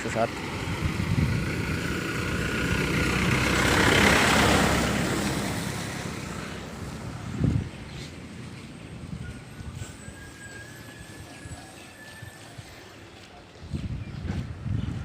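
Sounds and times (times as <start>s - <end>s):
vehicle passing by: 0.0s - 10.0s.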